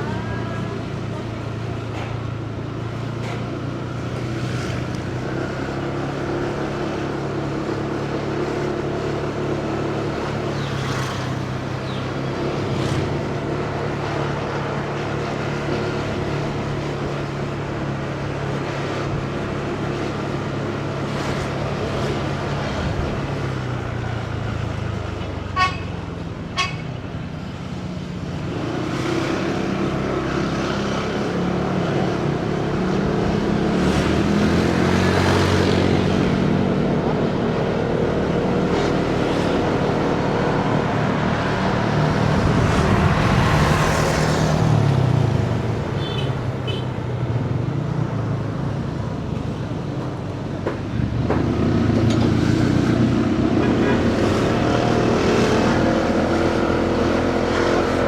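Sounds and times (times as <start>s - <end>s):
traffic noise: 0.0s - 58.0s
vehicle horn toots: 25.6s - 26.0s, 26.6s - 27.0s, 46.0s - 46.9s.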